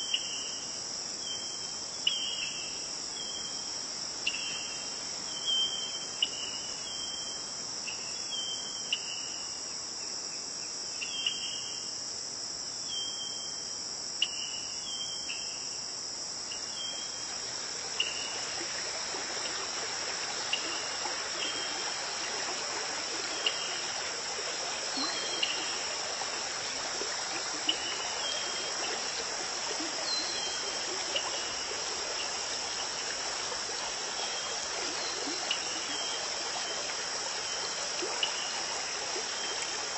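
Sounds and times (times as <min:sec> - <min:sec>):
flowing stream: 0:00.0 - 0:07.8, 0:16.4 - 0:39.9
crickets trilling: 0:00.0 - 0:39.9.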